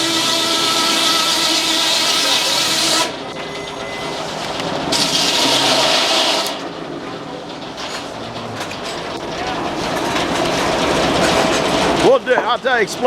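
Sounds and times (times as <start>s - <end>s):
circular saw cutting log: 0.0s - 3.2s, 4.9s - 6.6s.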